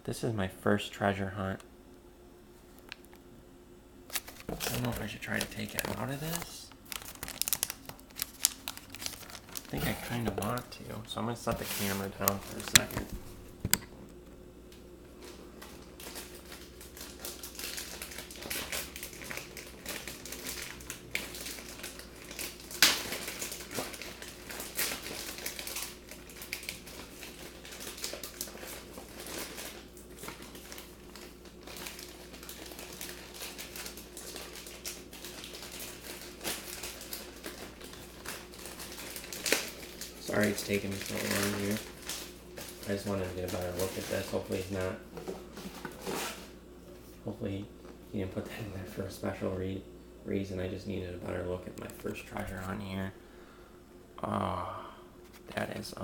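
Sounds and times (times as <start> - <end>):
plastic packaging crinkling: 4.1 - 13.8, 15.2 - 46.5
plastic snapping: 12.2 - 13.9.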